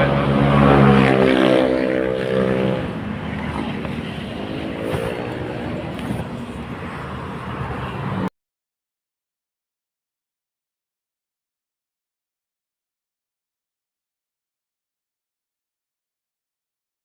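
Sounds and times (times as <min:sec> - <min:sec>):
vehicle engine running: 0:00.0 - 0:08.2
passing engine: 0:00.0 - 0:08.3.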